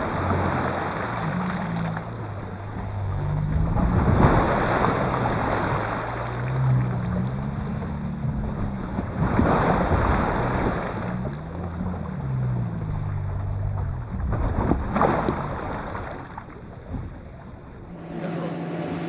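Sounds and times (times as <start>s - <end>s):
boat motor humming: 0.0s - 19.0s
water noise: 0.0s - 19.0s
wind: 0.0s - 19.0s.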